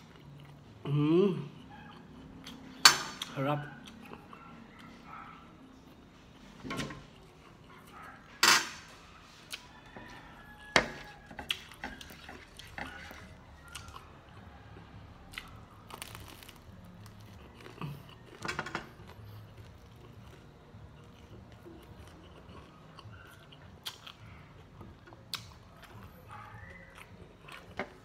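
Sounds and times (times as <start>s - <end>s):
person chewing crunchy fried food: 0.0s - 0.9s, 1.5s - 2.9s, 9.0s - 28.0s.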